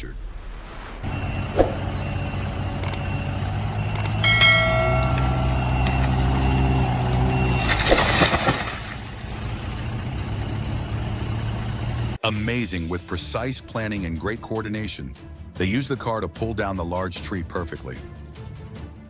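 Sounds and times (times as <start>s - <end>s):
vehicle engine running: 1.0s - 12.2s
brief high-pitched tone: 4.2s - 7.7s.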